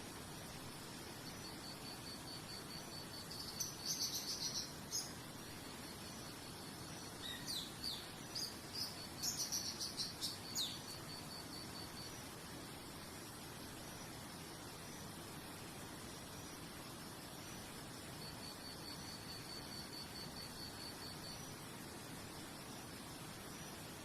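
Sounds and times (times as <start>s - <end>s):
soft background hiss: 0.0s - 24.0s
songbird chirping: 0.9s - 12.6s.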